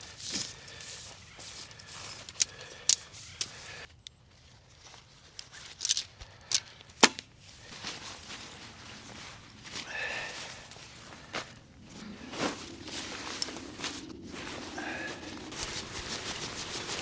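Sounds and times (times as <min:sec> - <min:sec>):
soft rustling: 0:07.4 - 0:17.0.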